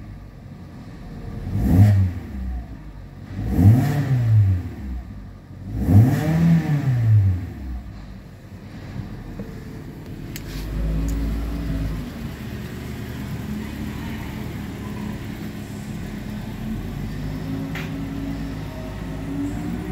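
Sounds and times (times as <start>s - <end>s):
car engine idling: 4.7s - 19.9s
low engine rumble: 7.2s - 19.9s.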